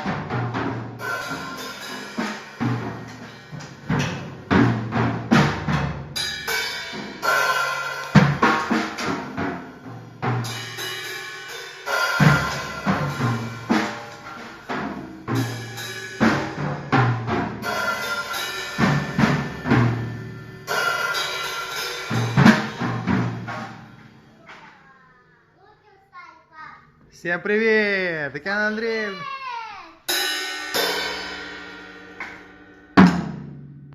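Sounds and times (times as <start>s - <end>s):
drum kit groove: 0.0s - 24.9s, 30.0s - 33.9s.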